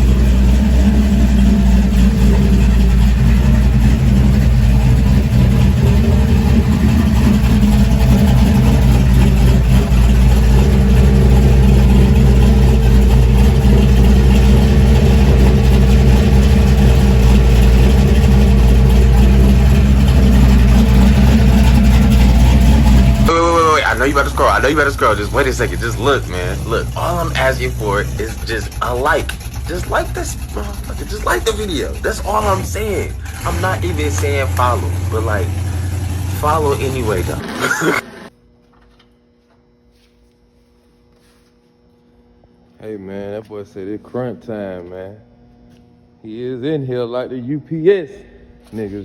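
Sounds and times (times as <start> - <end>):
car engine idling: 0.0 - 38.3.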